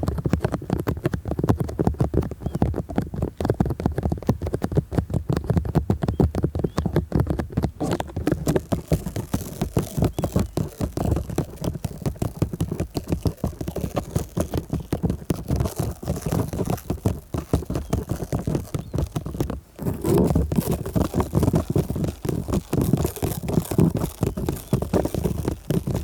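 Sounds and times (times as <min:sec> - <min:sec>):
fingers rubbing on microphone: 0:07.6 - 0:26.0.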